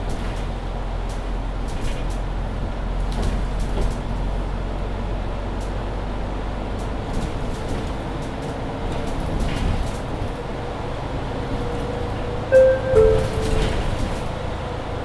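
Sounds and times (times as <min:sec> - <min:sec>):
bus engine and road rumble: 0:00.0 - 0:15.0
faint steady tone: 0:12.6 - 0:13.8.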